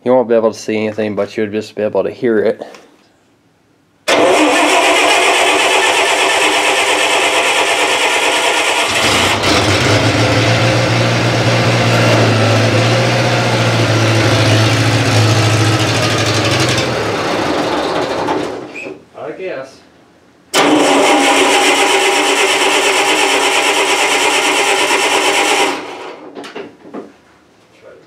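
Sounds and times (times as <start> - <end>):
starter motor cranking: 4.1 - 10.4, 20.6 - 26.1
gasoline engine running: 4.1 - 18.7.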